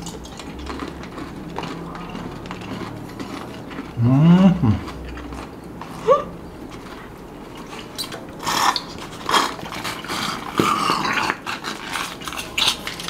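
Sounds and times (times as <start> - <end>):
person chewing crunchy candy: 0.0 - 13.0
person humming mmm: 4.0 - 5.0, 6.0 - 6.3.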